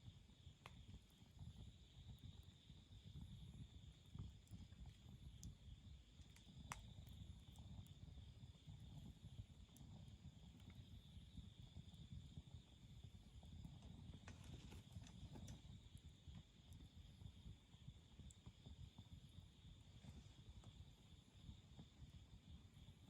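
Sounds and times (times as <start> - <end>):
campfire flames fluttering: 0.0 - 23.0
fire crackling and popping: 0.4 - 19.4.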